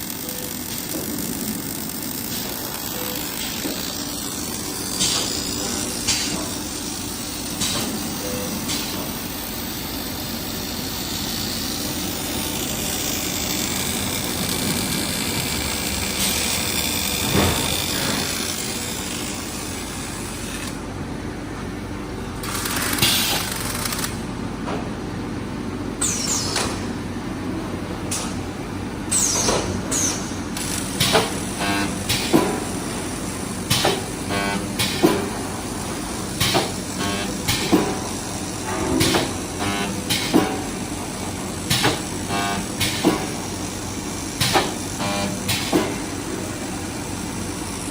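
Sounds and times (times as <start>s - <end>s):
machinery running: 0.0s - 20.8s.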